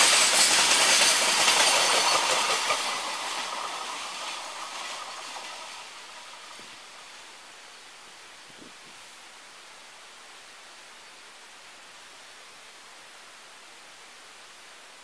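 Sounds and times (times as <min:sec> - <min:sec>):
wagon wheels clattering over rail joints: 0:00.0 - 0:07.2.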